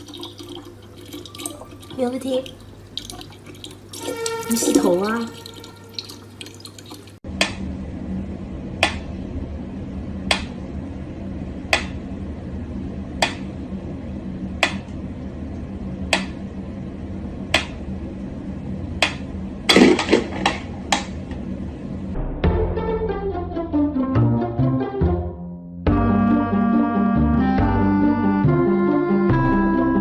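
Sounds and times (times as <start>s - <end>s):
low hum: 7.2s - 24.1s.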